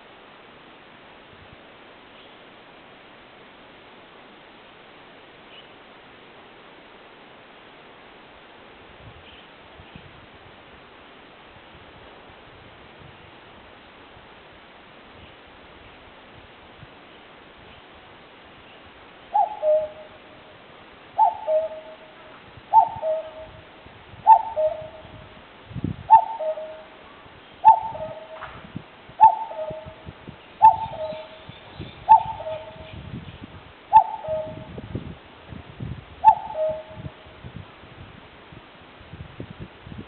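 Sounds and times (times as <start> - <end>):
cuckoo calling: 19.3 - 20.3, 21.2 - 23.6, 24.2 - 25.3, 26.1 - 28.5, 29.2 - 33.0, 33.9 - 34.7, 36.2 - 37.2.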